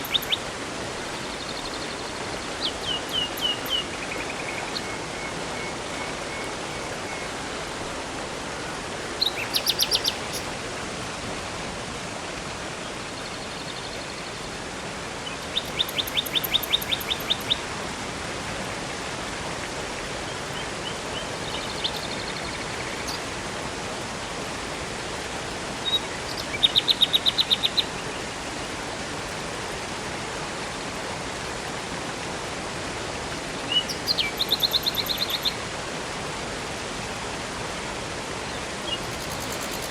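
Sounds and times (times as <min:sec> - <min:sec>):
songbird trilling: 0:00.0 - 0:00.4, 0:02.6 - 0:04.9, 0:09.2 - 0:10.5, 0:15.3 - 0:17.6, 0:33.7 - 0:35.6, 0:38.8 - 0:39.9
river water flowing: 0:00.0 - 0:39.9.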